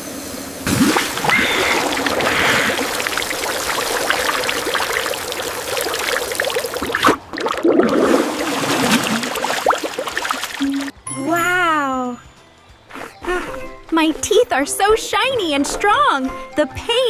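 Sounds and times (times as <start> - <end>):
water gushing and splashing: 0.7 - 10.9.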